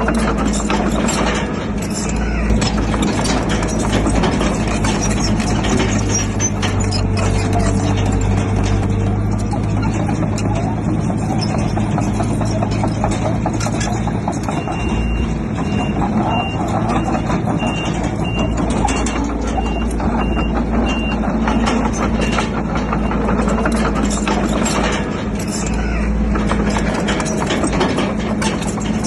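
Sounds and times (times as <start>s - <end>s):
clanks and rattles: 0.0s - 29.0s
diesel machinery running: 0.0s - 29.0s
reversing alarm beeps: 14.5s - 23.8s.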